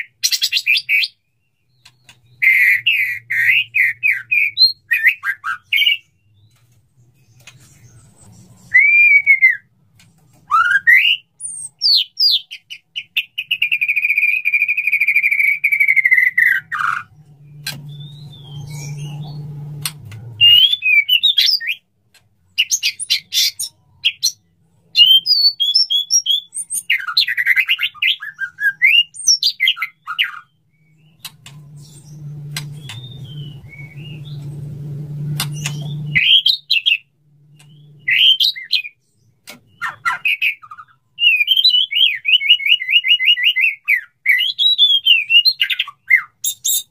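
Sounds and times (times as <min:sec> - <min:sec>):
bird whistled song: 0:00.0 - 0:09.7, 0:10.4 - 0:21.9, 0:22.6 - 0:46.9
low hum: 0:31.0 - 0:36.3
sharp bird clicks: 0:31.1 - 0:31.7, 0:35.4 - 0:36.4.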